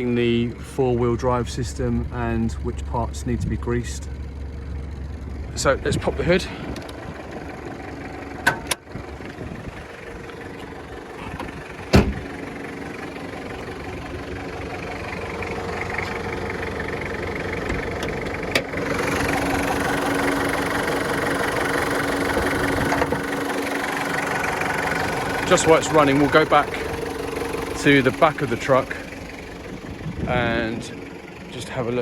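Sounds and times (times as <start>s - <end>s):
diesel engine idling: 0.0s - 32.0s
bonnet latch clunk: 8.4s - 8.8s, 11.2s - 12.3s.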